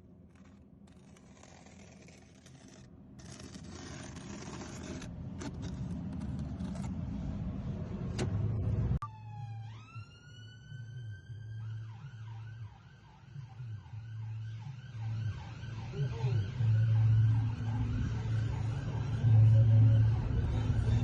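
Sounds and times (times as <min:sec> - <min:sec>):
emergency vehicle siren: 0:09.0 - 0:21.0.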